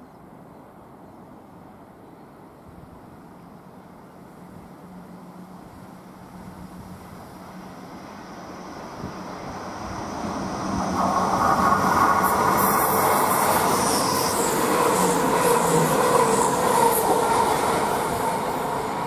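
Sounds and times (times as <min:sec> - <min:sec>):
diesel train passing: 0:00.7 - 0:19.0
high-pitched wheel noise: 0:10.6 - 0:19.0.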